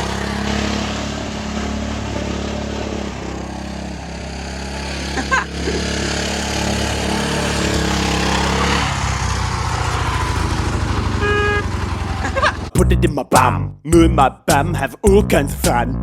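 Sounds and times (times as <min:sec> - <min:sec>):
garden tractor engine running: 0:00.0 - 0:15.8.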